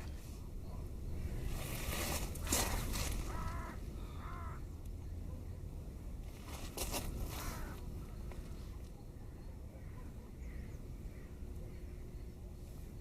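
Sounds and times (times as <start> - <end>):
steady low rumble: 0.0 - 13.0
crow cawing: 3.2 - 4.6, 7.4 - 7.8.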